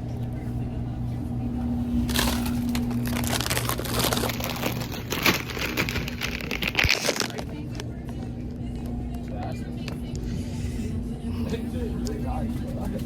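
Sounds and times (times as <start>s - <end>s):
steady low hum: 0.0s - 13.0s
snack bag crinkling: 2.1s - 7.8s.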